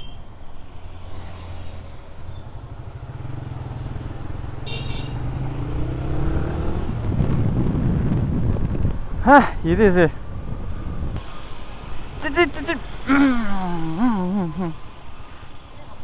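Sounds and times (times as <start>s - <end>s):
motorcycle engine accelerating: 2.3s - 9.0s.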